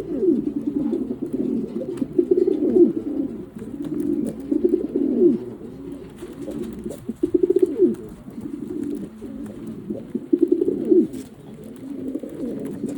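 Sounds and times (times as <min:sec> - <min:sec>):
loud rolling pigeon coos: 0:00.0 - 0:12.9
pigeons cooing: 0:00.0 - 0:12.9.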